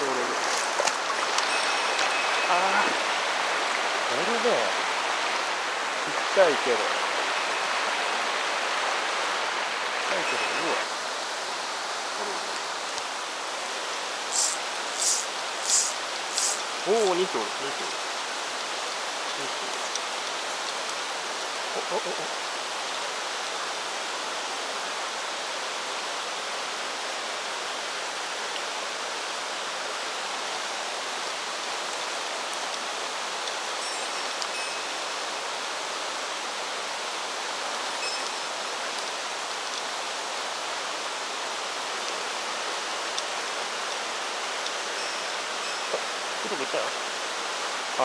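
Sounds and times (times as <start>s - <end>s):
water rushing over rocks: 0.0s - 25.5s.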